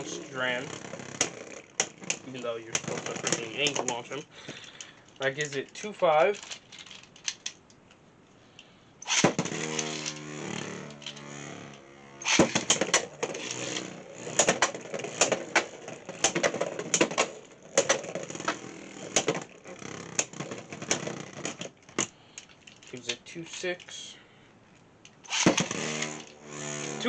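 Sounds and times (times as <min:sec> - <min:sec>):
spinning tops whirring: 0:00.0 - 0:04.2, 0:09.0 - 0:22.1, 0:25.2 - 0:27.0
spinning tops clacking together: 0:09.0 - 0:23.9, 0:25.1 - 0:27.0.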